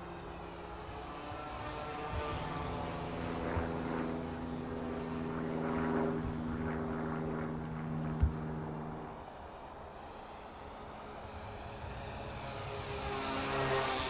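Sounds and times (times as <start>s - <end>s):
model plane motors droning: 0.0s - 14.0s.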